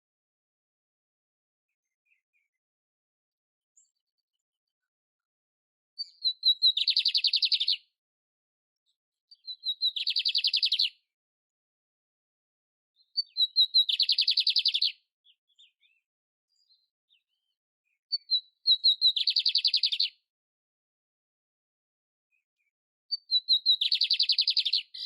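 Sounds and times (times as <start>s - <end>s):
canary singing trills: 6.0s - 7.9s, 9.3s - 11.0s, 13.0s - 16.0s, 16.6s - 20.2s, 23.1s - 25.0s.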